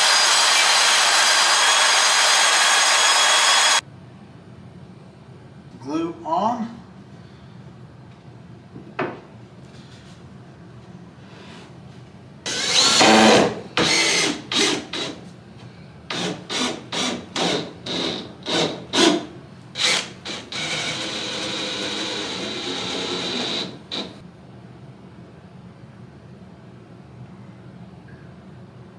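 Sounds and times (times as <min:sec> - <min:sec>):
sanding wood: 0:00.0 - 0:03.8.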